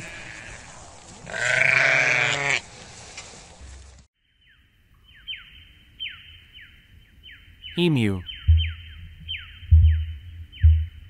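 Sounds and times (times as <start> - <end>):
flock of sheep: 0.0 - 2.6
sheep bleating: 1.3 - 2.6.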